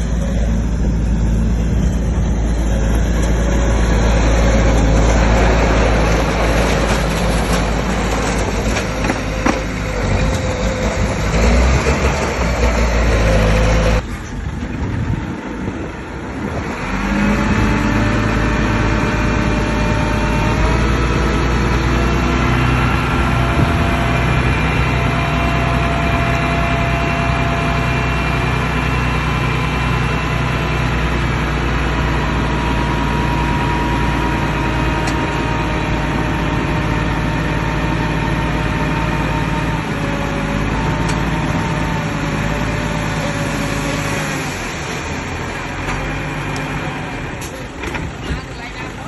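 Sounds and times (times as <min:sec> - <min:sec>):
bulldozer diesel engine rumbling: 0:00.0 - 0:49.0.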